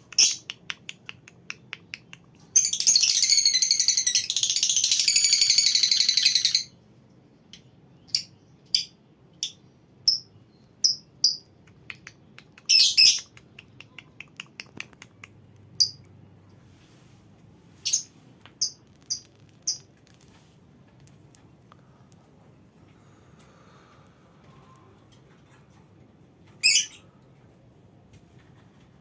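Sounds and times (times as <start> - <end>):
lovebird chattering trill: 26.6 - 27.0.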